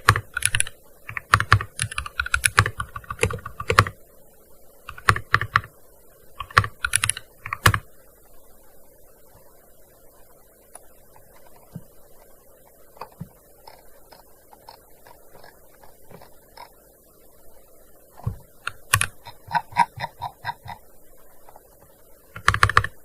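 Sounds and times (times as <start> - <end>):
keyboard keystrokes clacking: 0.0 - 4.0, 6.4 - 7.8, 18.2 - 20.8, 22.4 - 23.0.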